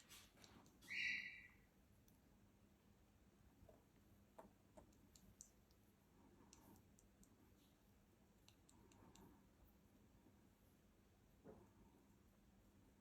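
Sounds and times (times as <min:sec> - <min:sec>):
faint sharp clicks: 0:04.4 - 0:05.8, 0:06.4 - 0:07.4, 0:08.4 - 0:09.4.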